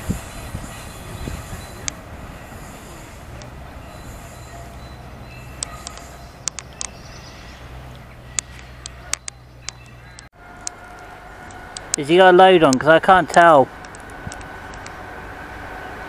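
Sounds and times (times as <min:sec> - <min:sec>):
freight train rumbling past: 0:00.0 - 0:16.0
sharp clicks: 0:05.6 - 0:07.0, 0:07.9 - 0:12.0, 0:12.6 - 0:15.0.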